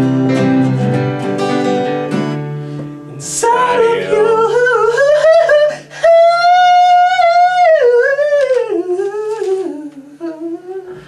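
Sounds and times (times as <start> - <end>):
person humming: 3.1 - 6.2, 8.7 - 11.0.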